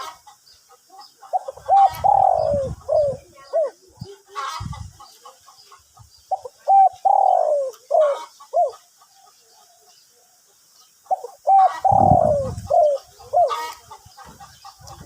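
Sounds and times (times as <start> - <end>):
dove cooing: 1.2 - 4.8, 6.3 - 10.3, 11.1 - 13.8.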